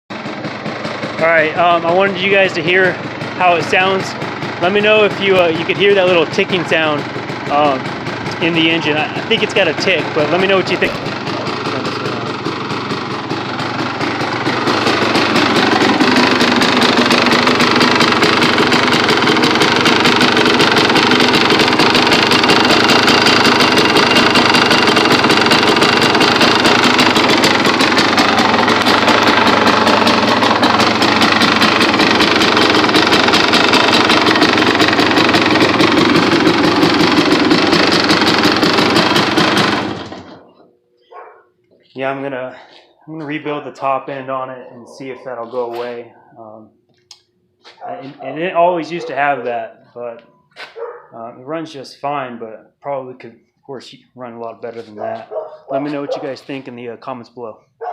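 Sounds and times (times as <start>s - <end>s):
two-stroke engine running: 0.1s - 41.4s, 48.1s - 49.7s, 55.0s - 56.8s.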